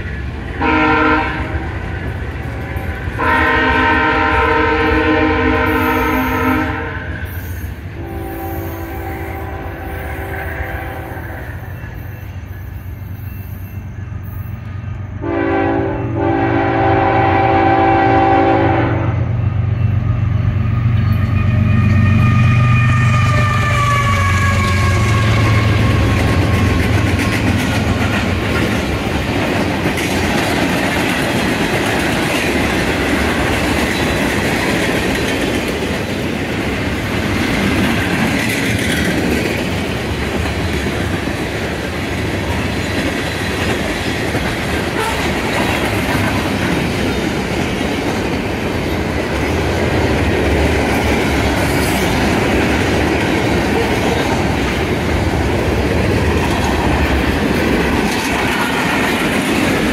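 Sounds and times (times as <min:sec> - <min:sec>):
steel wheels clattering on rails: 0:23.0 - 0:59.9.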